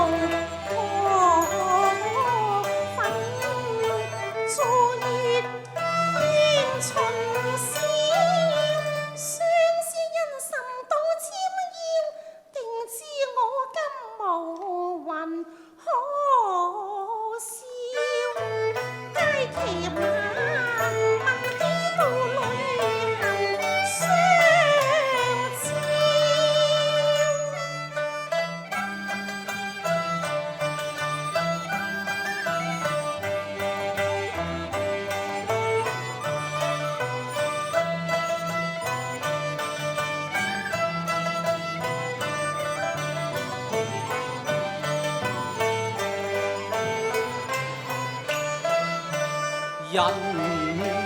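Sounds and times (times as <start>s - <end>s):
sliding vocal melody with vibrato: 49.8s - 51.0s.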